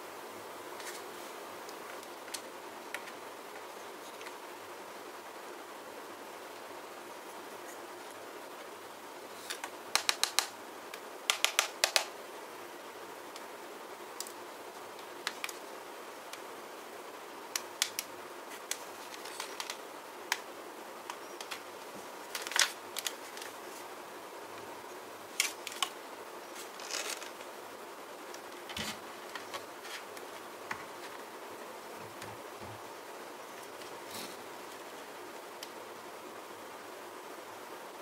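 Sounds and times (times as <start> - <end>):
steady hiss: 0.0 - 38.0
plastic parts clicking and scraping: 17.9 - 20.4, 22.3 - 23.6, 26.6 - 27.4, 28.6 - 31.2.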